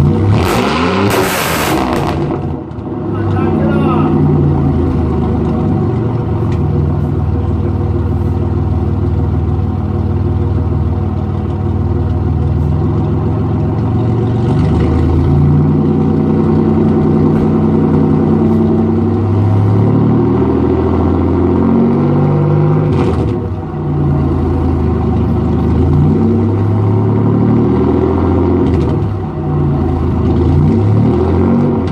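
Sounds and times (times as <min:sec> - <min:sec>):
car engine through loud exhaust: 0:00.0 - 0:31.9.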